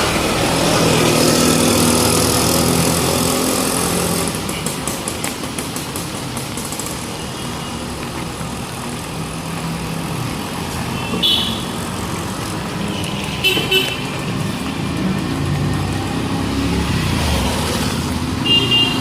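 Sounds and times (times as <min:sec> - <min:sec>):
city street traffic: 0:00.0 - 0:19.0
vehicle horns honking: 0:10.9 - 0:11.8, 0:12.8 - 0:14.3, 0:18.4 - 0:19.0.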